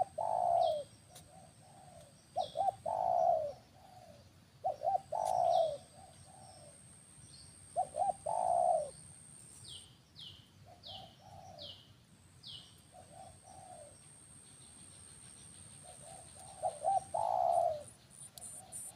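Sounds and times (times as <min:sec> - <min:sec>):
low cooing bird calls: 0:00.0 - 0:09.0, 0:09.6 - 0:14.1, 0:14.7 - 0:18.9
high falling bird chirps: 0:14.7 - 0:18.9.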